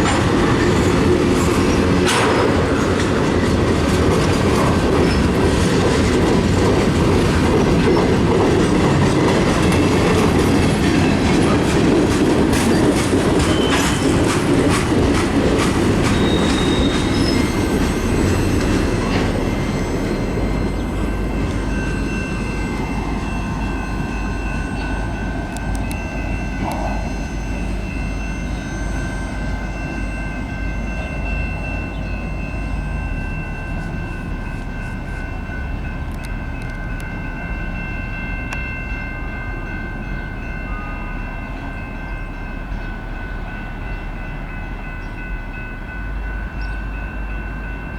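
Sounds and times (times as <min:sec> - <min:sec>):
wheels clicking over rail joints: 0:00.0 - 0:28.6
train cars rolling past: 0:00.0 - 0:47.9
high-pitched wheel squeal: 0:16.0 - 0:20.9.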